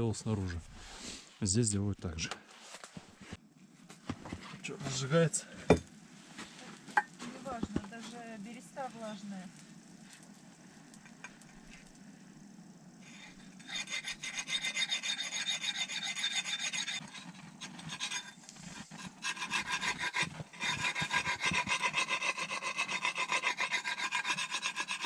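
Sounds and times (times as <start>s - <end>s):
hand saw cutting wood: 13.6s - 25.0s.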